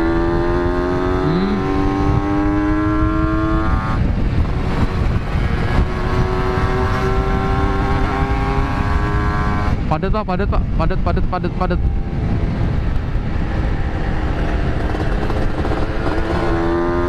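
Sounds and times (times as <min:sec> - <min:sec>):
wind rumble on microphone: 0:00.0 - 0:17.0
two-stroke motorcycle engine: 0:12.5 - 0:17.0.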